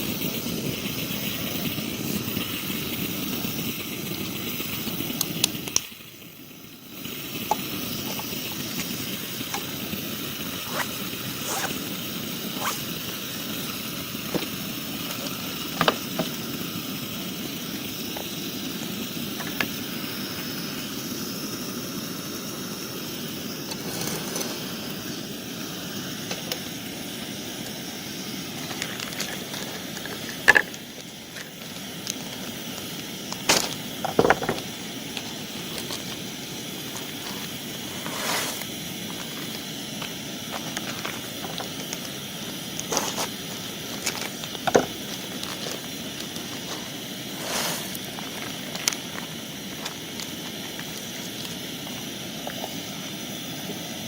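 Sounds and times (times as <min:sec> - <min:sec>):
campfire crackling: 0:00.0 - 0:54.0
fire pops: 0:26.2 - 0:52.9.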